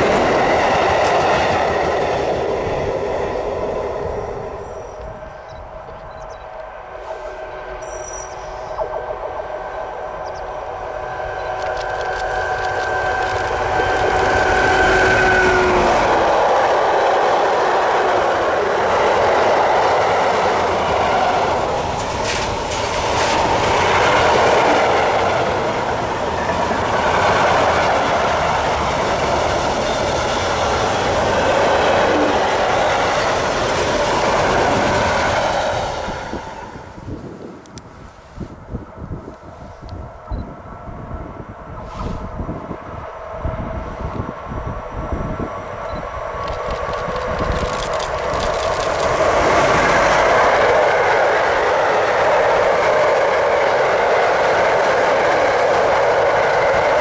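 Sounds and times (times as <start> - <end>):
train wheels clacking on rails: 0.0 - 4.6, 11.0 - 36.6, 46.3 - 57.0
train whine: 0.0 - 57.0.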